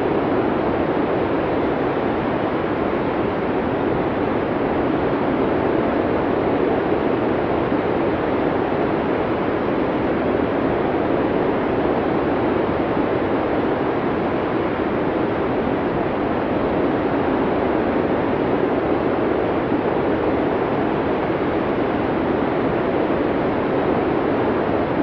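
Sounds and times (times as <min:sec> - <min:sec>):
blizzard wind rush: 0:00.0 - 0:25.0.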